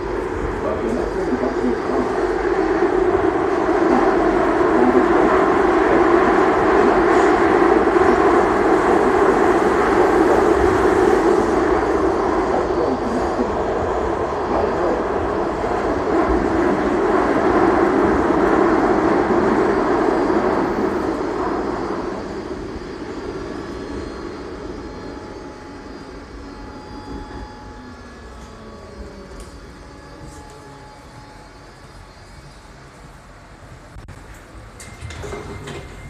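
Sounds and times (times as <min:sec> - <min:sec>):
subway train rumbling in tunnel: 0:00.0 - 0:36.0
thin whining tones: 0:19.2 - 0:33.6.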